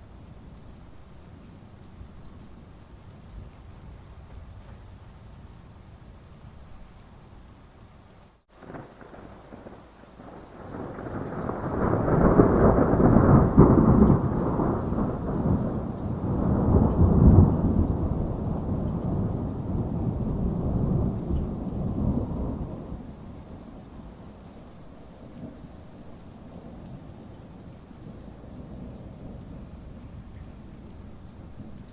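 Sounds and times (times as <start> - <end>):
steady rain: 0.0 - 31.9
rolling thunder: 8.6 - 24.3, 25.2 - 31.9.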